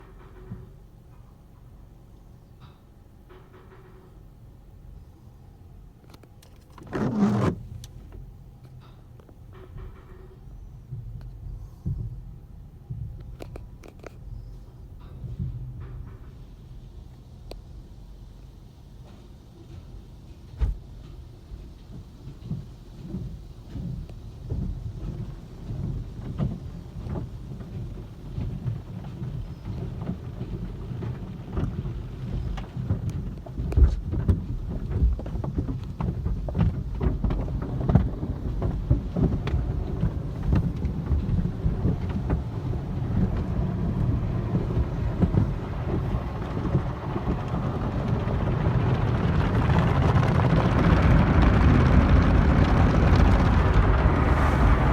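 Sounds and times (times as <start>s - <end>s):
cloth strips slapping car body: 6.7s - 8.0s
water spraying onto car: 37.9s - 54.9s
rising hiss: 48.4s - 54.9s.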